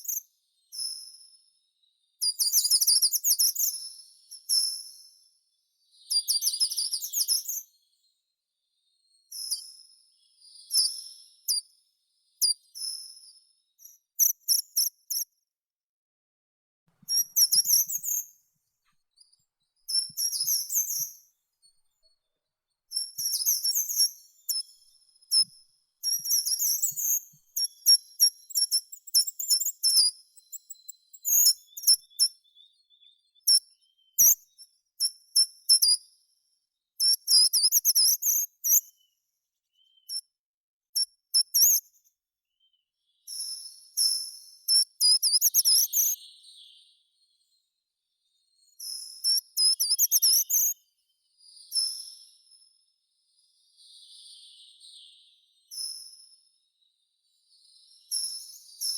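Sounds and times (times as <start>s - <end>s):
songbird chirps and trills: 5.6s - 15.3s, 19.1s - 22.3s, 22.9s - 35.8s, 42.5s - 58.9s.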